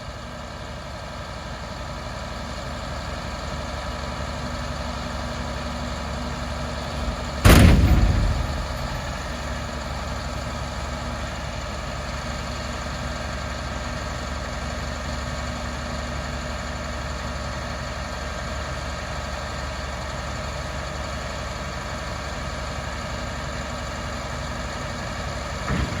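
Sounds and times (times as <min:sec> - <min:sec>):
diesel truck idling: 0:02.9 - 0:12.3
loud bang: 0:06.9 - 0:10.0, 0:25.7 - 0:26.0.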